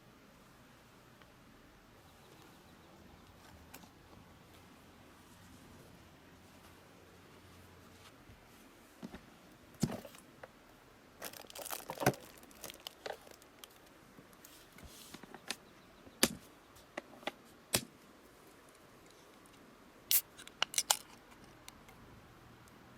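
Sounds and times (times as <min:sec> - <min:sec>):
crinkling and rustling: 0:03.3 - 0:10.6, 0:11.2 - 0:15.6.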